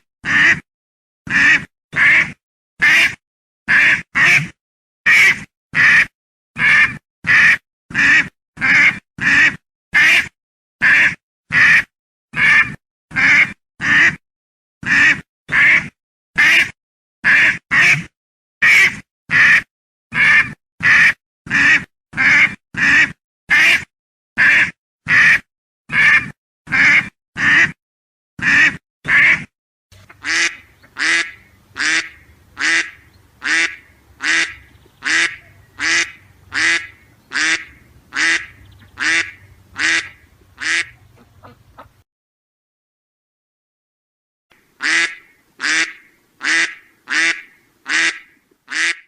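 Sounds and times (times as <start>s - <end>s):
duck quacking: 0.2s - 0.6s, 1.3s - 14.2s, 14.8s - 27.8s, 28.4s - 42.0s, 44.8s - 49.0s.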